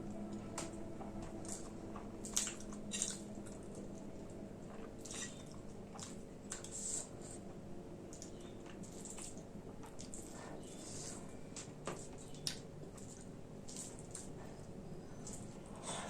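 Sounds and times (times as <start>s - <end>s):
faint steady hum: 0.0s - 16.0s
wet chewing and lip smacks: 12.2s - 14.4s.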